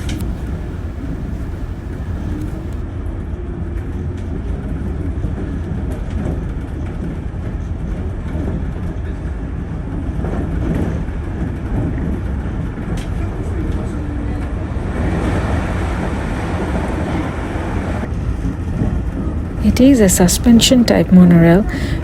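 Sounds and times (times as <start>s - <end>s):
monorail train rumble: 0.0s - 2.9s, 8.5s - 22.0s.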